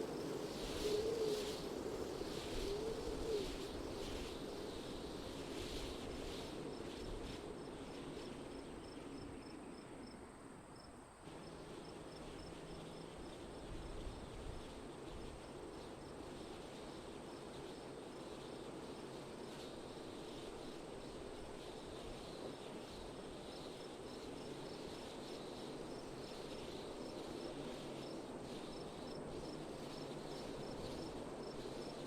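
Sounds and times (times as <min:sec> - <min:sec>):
wind blowing: 0:00.0 - 0:10.2.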